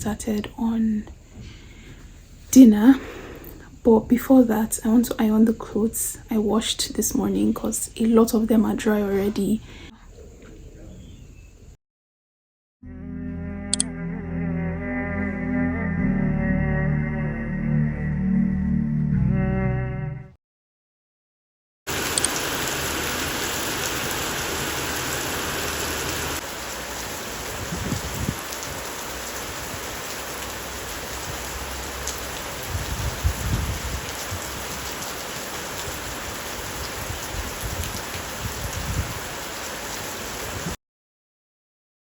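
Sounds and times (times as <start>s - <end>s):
steady rain falling: 21.9s - 40.8s.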